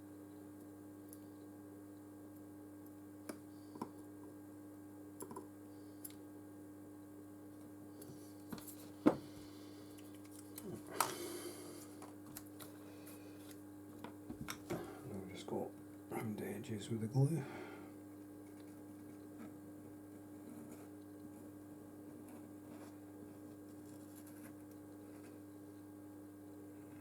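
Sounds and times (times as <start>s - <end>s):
steady low hum: 0.1s - 27.0s
small clicks and taps: 5.2s - 6.2s.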